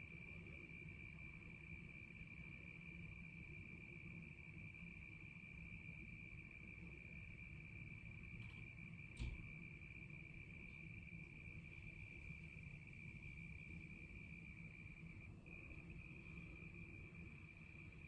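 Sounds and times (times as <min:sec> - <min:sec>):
cricket trilling: 0:00.1 - 0:18.0.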